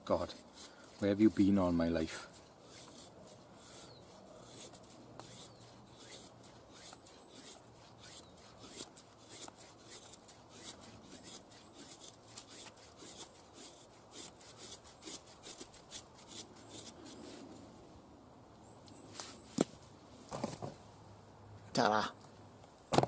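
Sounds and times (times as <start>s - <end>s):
knife scraping wood: 0.0s - 17.5s.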